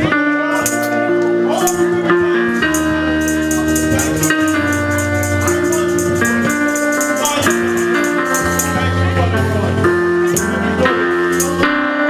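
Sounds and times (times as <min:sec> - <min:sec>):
bass line: 0:00.0 - 0:12.0
keyboard organ chords: 0:00.0 - 0:12.0
shaker percussion ticking: 0:02.6 - 0:08.8.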